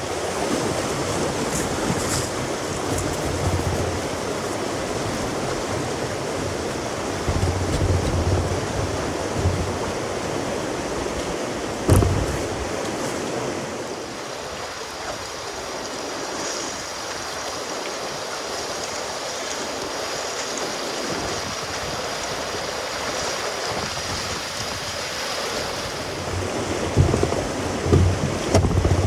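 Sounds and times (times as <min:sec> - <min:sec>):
water rushing over rocky rapids: 0:00.0 - 0:29.0
brief thump: 0:11.8 - 0:12.8.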